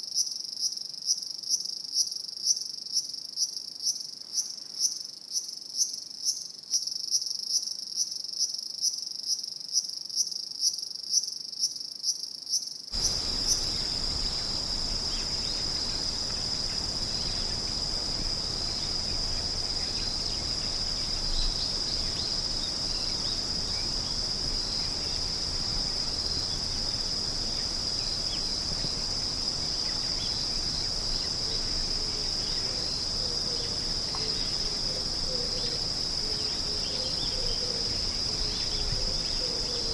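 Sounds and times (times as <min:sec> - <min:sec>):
crickets chirping: 0:00.0 - 0:39.9
high insect trill: 0:00.2 - 0:39.9
faint hiss: 0:13.0 - 0:39.9.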